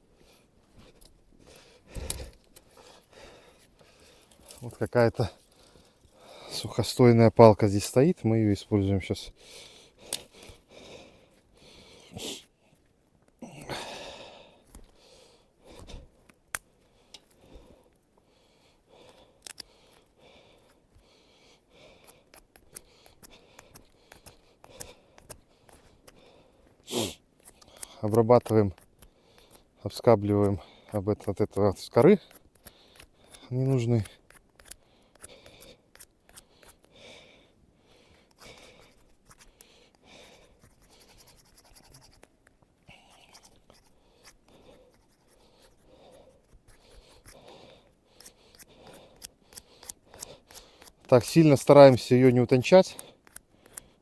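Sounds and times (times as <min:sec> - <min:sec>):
knife blade scraping wood: 0:32.2 - 0:36.9, 0:38.3 - 0:39.6, 0:40.2 - 0:42.3, 0:43.1 - 0:47.5, 0:48.2 - 0:51.6, 0:52.6 - 0:53.9.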